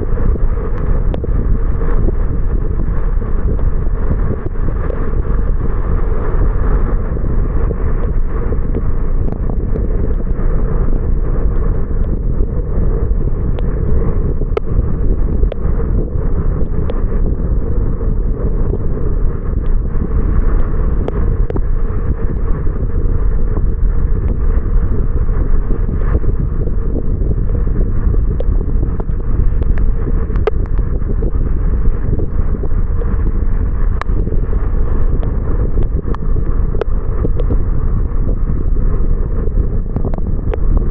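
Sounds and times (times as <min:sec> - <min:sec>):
wind on microphone: 0:00.0 - 0:40.9
faint ticks: 0:28.4 - 0:32.4.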